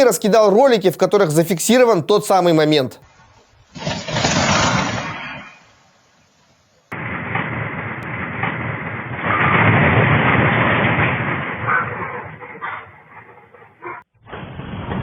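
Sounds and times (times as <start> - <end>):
earthquake rumbling roar: 7.0 - 15.0.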